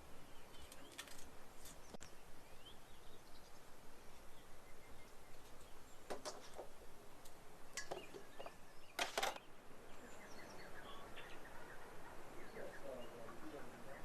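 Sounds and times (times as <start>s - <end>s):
outdoor background noise: 0.0s - 14.0s
faint bird chirps: 7.6s - 14.0s.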